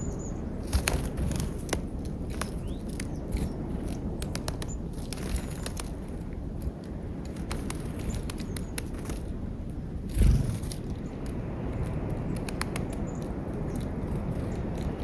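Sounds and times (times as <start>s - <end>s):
steady low rumble: 0.0s - 15.0s
birds pecking at peanuts: 0.1s - 15.0s
low thump: 10.1s - 10.8s.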